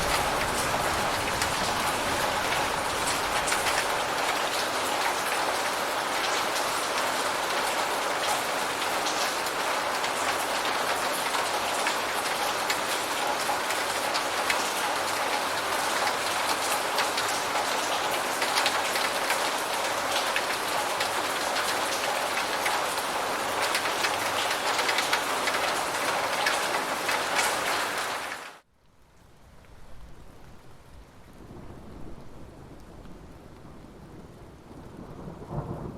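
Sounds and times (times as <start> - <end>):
heavy rain falling: 0.0 - 35.9.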